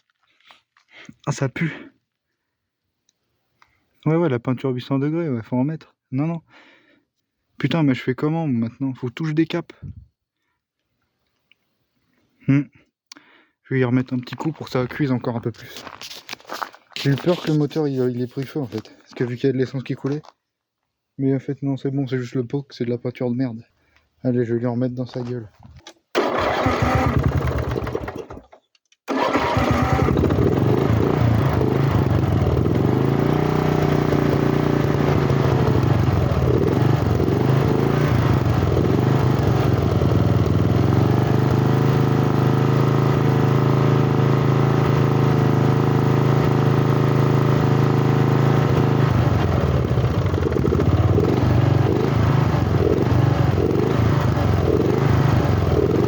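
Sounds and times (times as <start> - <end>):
lawn tractor engine revving: 26.2 - 56.0.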